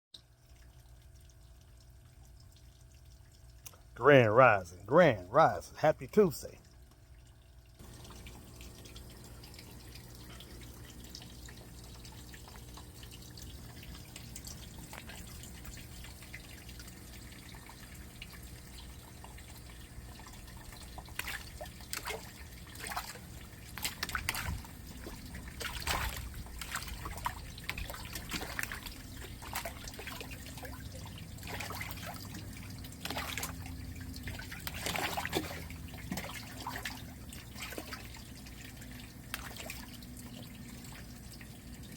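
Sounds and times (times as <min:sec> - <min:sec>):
water trickling and dripping: 0:00.2 - 0:41.9
short water splashes: 0:19.2 - 0:41.2.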